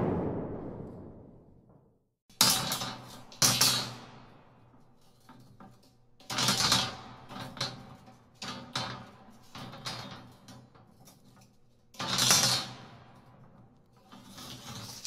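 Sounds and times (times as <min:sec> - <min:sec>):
crashing impacts with rattling: 0:00.0 - 0:01.8.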